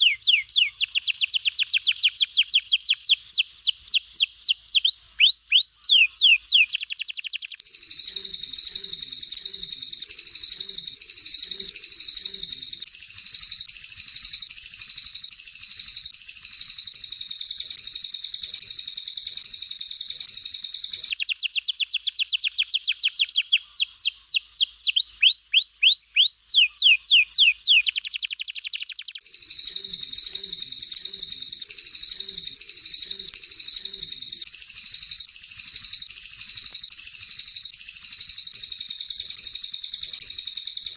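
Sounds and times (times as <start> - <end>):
harsh buzzing bird trill: 0.0 - 40.9.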